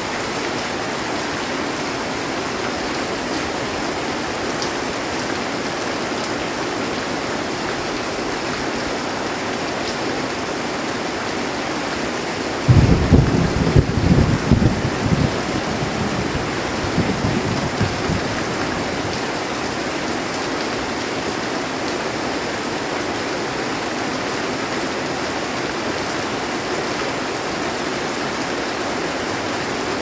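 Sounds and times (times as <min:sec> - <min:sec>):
heavy rain on a metal roof: 0:00.0 - 0:30.0
low rumble of thunder: 0:12.7 - 0:19.2.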